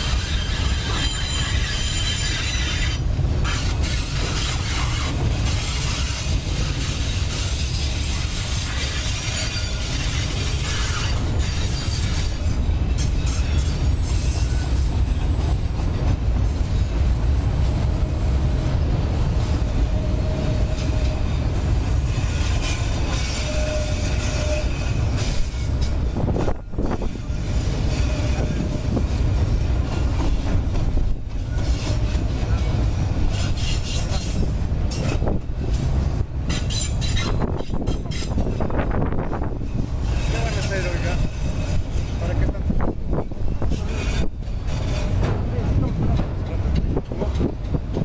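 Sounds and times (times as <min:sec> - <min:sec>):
faint wheel squeal: 0:00.0 - 0:16.0, 0:19.2 - 0:29.5, 0:36.5 - 0:42.5
steel wheels rumbling on rails: 0:00.0 - 0:48.0.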